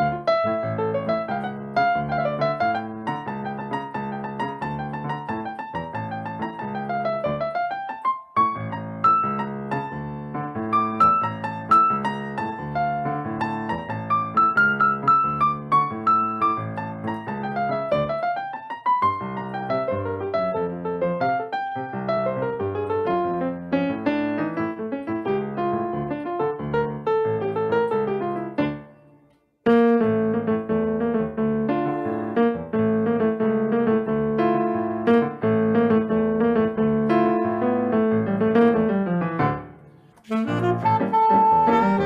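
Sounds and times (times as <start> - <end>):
piano playing chords and runs: 0.0 - 29.0, 29.7 - 42.0
saxophone: 31.7 - 32.5, 40.2 - 42.0.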